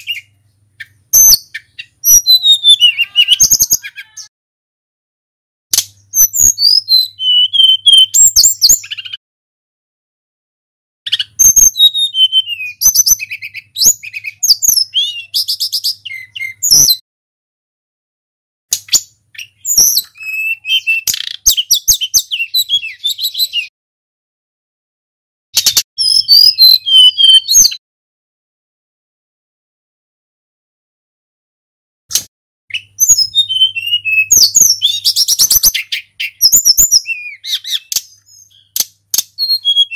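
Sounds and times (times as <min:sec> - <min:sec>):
songbird whistles and trills: 0:00.0 - 0:04.3, 0:05.7 - 0:09.2, 0:11.1 - 0:17.0, 0:18.7 - 0:23.7, 0:25.6 - 0:27.8, 0:32.1 - 0:39.9.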